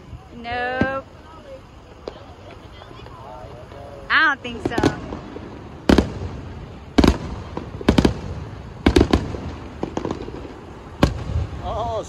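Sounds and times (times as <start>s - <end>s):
firework shells bursting: 0.1s - 12.0s.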